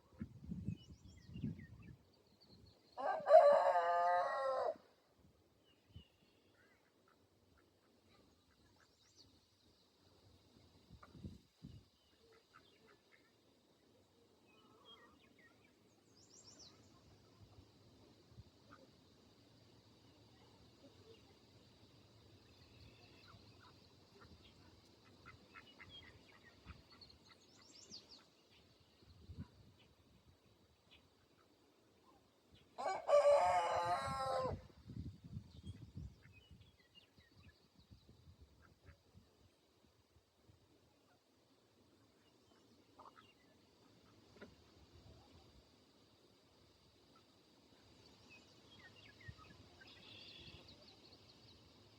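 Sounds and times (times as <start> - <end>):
rooster crowing: 3.0 - 4.8, 32.8 - 34.6
faint small bird chirps: 47.1 - 51.9.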